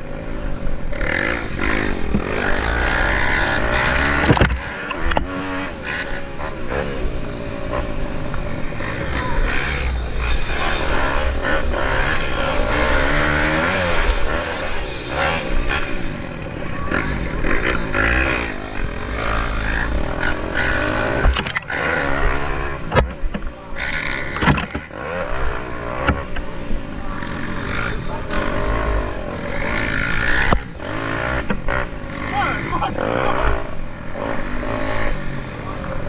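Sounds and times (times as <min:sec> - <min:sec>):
pit bike engines revving: 0:00.0 - 0:36.0.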